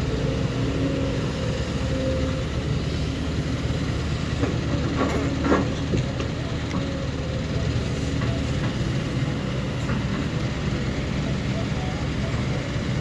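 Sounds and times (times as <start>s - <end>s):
heavy diesel engine running: 0.0s - 13.0s
knocks and clatters: 4.4s - 6.9s.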